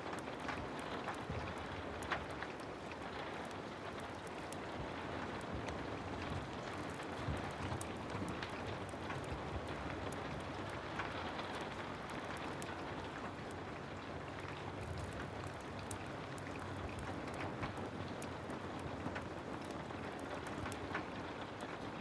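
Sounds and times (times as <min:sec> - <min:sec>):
heavy rain falling: 0:14.2 - 0:21.8
small sharp ticks: 0:14.3 - 0:21.1.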